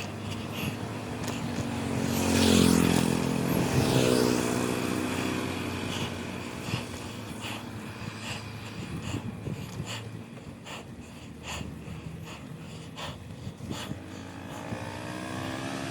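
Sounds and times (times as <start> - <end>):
motorcycle passing by: 0.0 - 9.3, 13.9 - 15.9.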